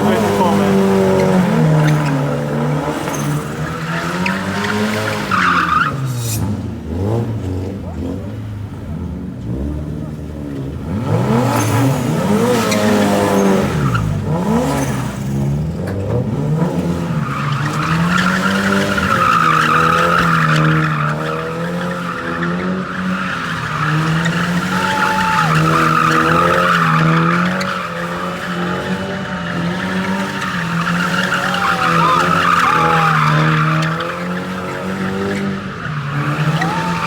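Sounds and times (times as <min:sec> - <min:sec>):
car engine revving: 0:00.0 - 0:37.0
tyres squealing: 0:17.2 - 0:37.0.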